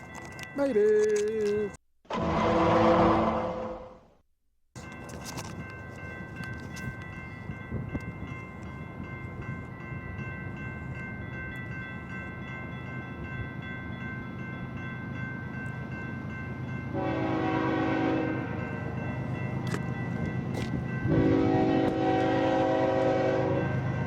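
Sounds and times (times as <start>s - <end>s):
locomotive horn: 2.1s - 4.1s, 16.9s - 18.6s, 21.1s - 23.8s.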